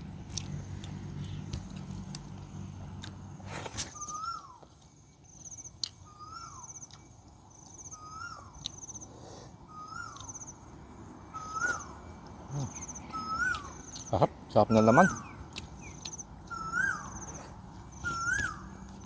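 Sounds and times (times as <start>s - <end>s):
clicks of eating with hands: 0.2s - 3.9s, 5.7s - 6.0s, 15.5s - 19.0s
bird trilling and whistling: 3.8s - 4.7s, 6.0s - 6.9s, 7.8s - 8.6s, 9.7s - 10.6s, 11.3s - 14.1s, 14.7s - 19.0s.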